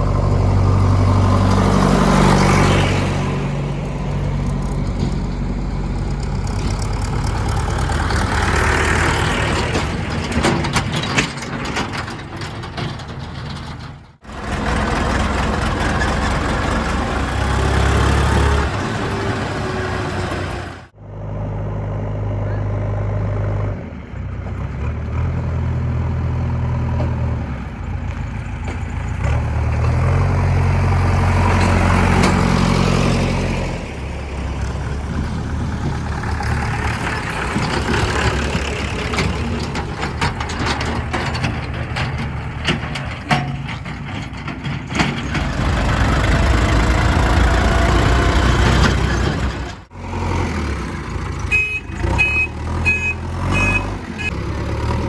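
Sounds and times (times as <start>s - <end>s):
diesel engines working: 0.0s - 55.0s
high beeps: 51.6s - 54.3s.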